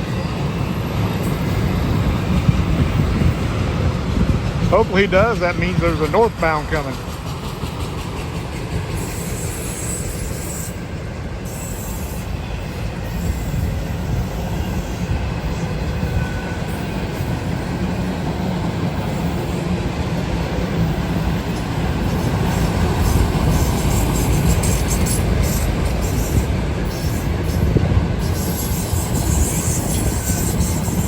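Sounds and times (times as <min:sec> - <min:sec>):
train wheels rumbling on rail: 0:00.0 - 0:31.0
faint wheel squeal: 0:28.2 - 0:31.0.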